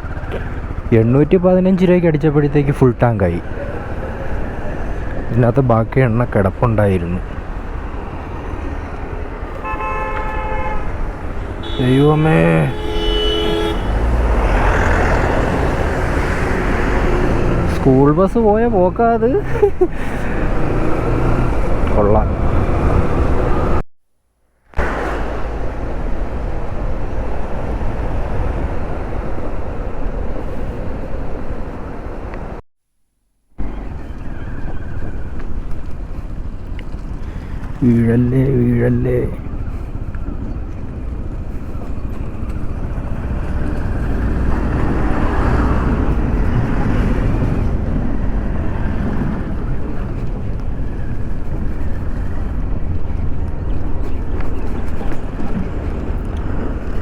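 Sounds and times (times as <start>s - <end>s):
motorcycle engine: 0.0s - 5.4s, 6.1s - 23.8s
motorcycle engine and road rumble: 0.0s - 23.8s, 24.7s - 32.6s, 33.6s - 57.0s
wind buffeting microphone: 19.4s - 23.8s, 24.8s - 32.6s, 33.6s - 57.0s.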